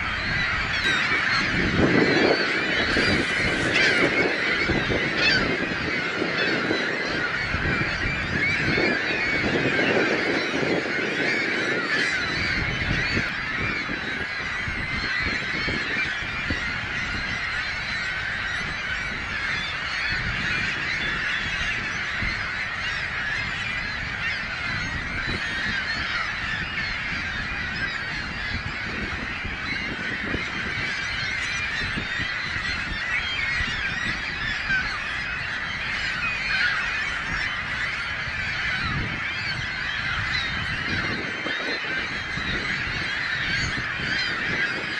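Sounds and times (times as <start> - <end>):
flock of birds calling: 0.0 - 44.9.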